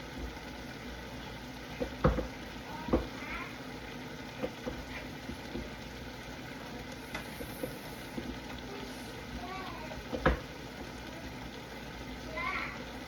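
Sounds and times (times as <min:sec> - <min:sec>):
meat sizzling in a pot: 0:00.0 - 0:13.0
utensil knocking against pot: 0:01.8 - 0:02.3.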